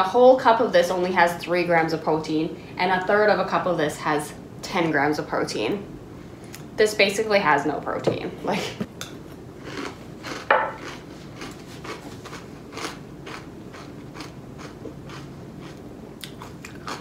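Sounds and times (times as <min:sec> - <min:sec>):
person crunching cereal: 0:09.6 - 0:17.0.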